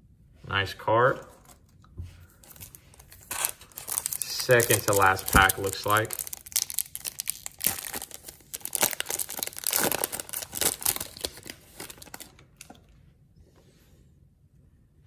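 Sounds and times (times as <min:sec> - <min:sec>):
wrapper tearing and crinkling: 0:02.4 - 0:12.8.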